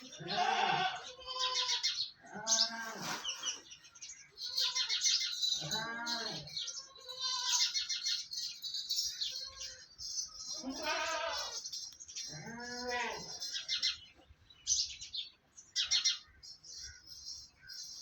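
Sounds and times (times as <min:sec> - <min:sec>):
goats bleating: 0:00.0 - 0:03.2, 0:05.6 - 0:07.8, 0:10.5 - 0:11.6, 0:12.3 - 0:13.4
small birds chirping: 0:00.0 - 0:18.0.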